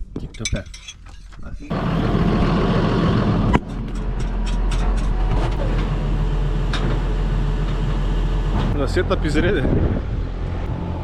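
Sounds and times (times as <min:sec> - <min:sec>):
farm machine engine running: 0:01.7 - 0:09.5.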